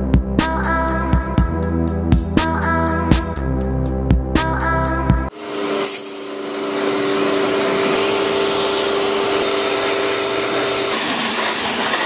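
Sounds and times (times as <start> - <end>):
pressure washer motor hum: 5.3 - 12.0
pressure washer spray hiss: 5.3 - 12.0.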